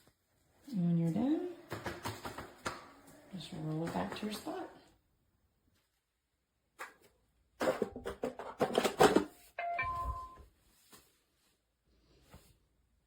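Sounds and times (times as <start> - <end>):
plastic clattering and knocking: 7.6 - 10.2
short electronic chime: 9.6 - 10.4.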